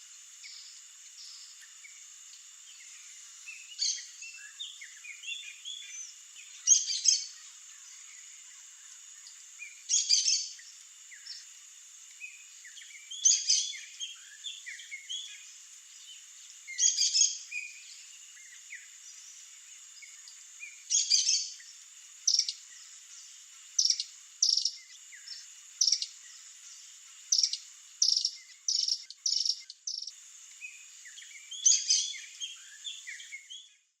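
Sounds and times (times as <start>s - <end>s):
steady high hiss: 0.0s - 34.0s
birds chirping: 22.3s - 33.7s.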